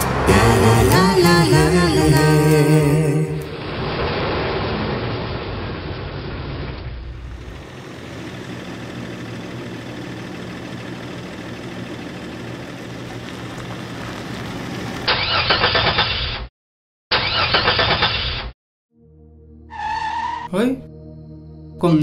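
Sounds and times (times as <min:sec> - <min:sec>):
car engine running: 0:06.9 - 0:15.1.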